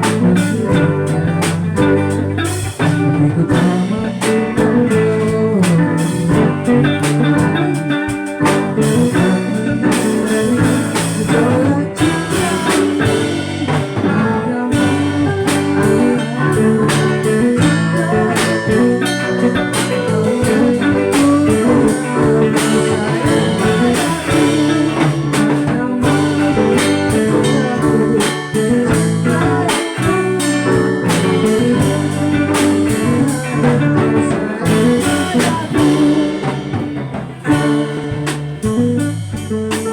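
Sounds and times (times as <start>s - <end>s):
live band playing: 0.0s - 39.9s.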